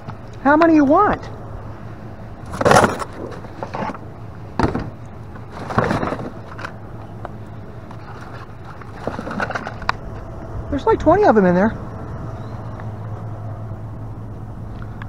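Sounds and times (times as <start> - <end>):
steady low hum: 0.0 - 15.0
items rummaged in dumpster: 2.4 - 6.8, 7.9 - 9.9.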